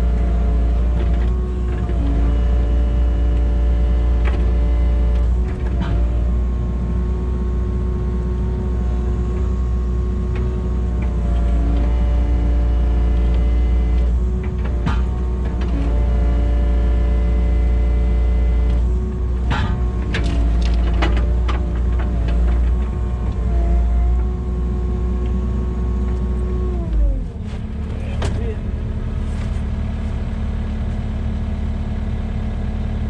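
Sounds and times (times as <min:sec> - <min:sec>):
excavator diesel drone: 0:00.0 - 0:33.0
hydraulic whine: 0:00.0 - 0:33.0
knocks and clanks: 0:04.2 - 0:06.4, 0:13.2 - 0:16.1, 0:18.7 - 0:23.5.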